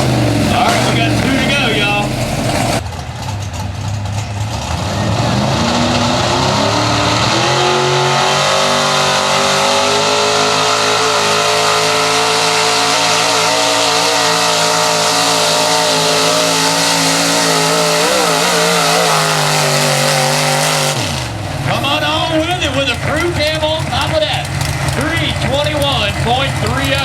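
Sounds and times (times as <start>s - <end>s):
truck engine at full throttle: 0.0s - 27.0s.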